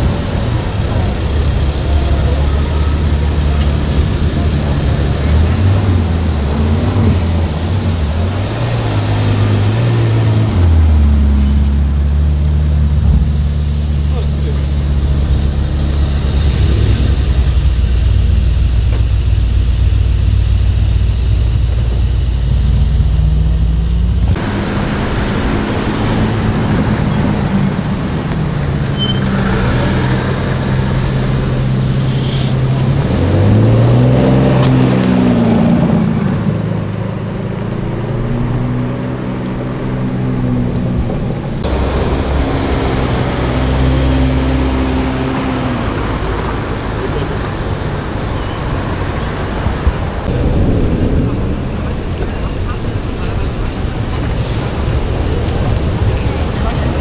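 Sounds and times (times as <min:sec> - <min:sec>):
engine revving: 0:00.0 - 0:57.0
sports car engines running: 0:00.0 - 0:57.0.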